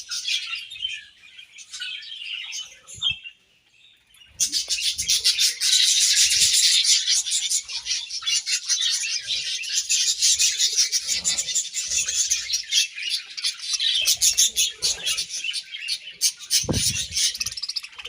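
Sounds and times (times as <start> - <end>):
budgerigars chattering: 4.3 - 18.0.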